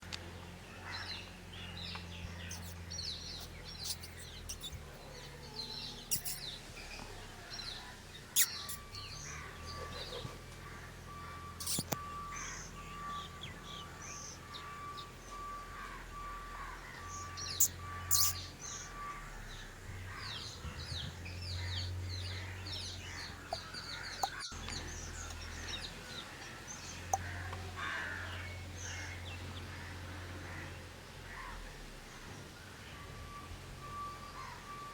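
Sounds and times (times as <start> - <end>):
birds chirping and calling: 0.4 - 33.2
sharp clicks: 23.5 - 25.4.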